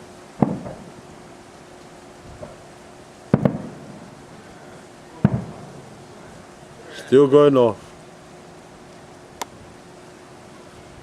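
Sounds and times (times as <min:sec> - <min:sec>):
distant fireworks bangs: 0:00.4 - 0:01.0, 0:02.3 - 0:02.7, 0:03.3 - 0:04.5, 0:05.1 - 0:06.5.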